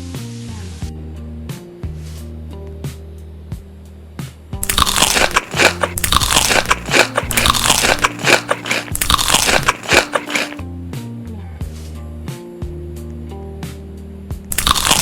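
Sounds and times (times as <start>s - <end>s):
crunchy food chewing: 4.6s - 10.6s, 14.5s - 15.0s.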